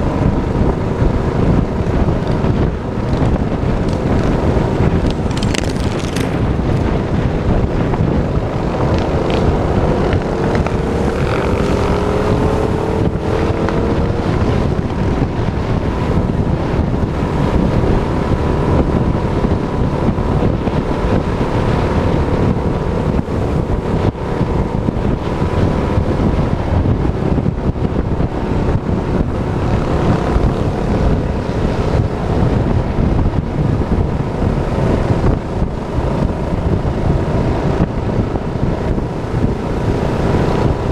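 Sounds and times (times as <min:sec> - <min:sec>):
minibike engine running: 0:00.0 - 0:40.9
wind buffeting microphone: 0:00.0 - 0:40.9.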